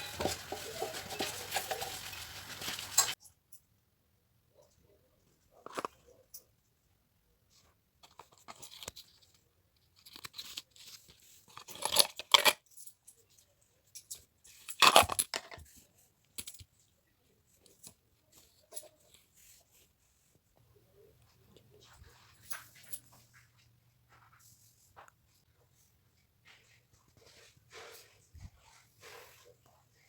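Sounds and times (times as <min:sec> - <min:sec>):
kitchenware clattering: 0:00.0 - 0:03.2
kitchen clinks and rustles: 0:00.0 - 0:03.3.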